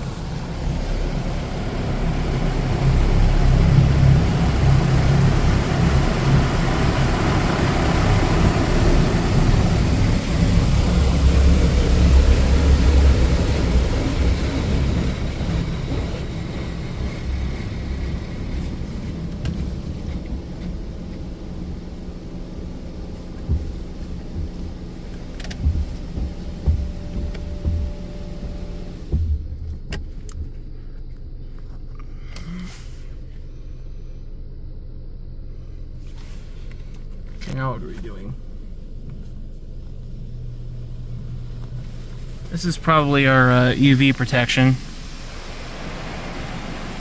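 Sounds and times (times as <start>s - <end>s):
low machine hum: 0.0s - 47.0s
water spray hissing: 41.9s - 47.0s.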